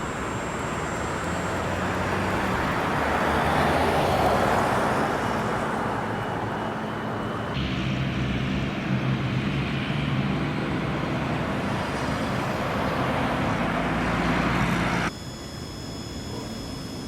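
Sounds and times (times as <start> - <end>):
engine roar with rushing air: 0.0 - 17.0
thin high tones: 15.0 - 17.0.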